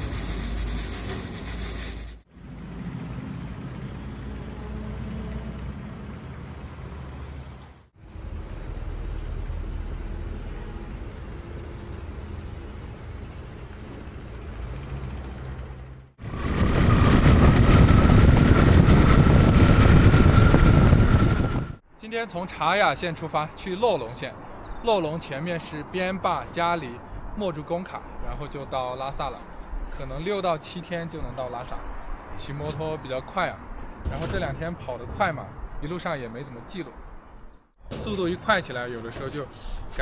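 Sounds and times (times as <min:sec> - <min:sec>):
wind rush: 0:16.2 - 0:21.8.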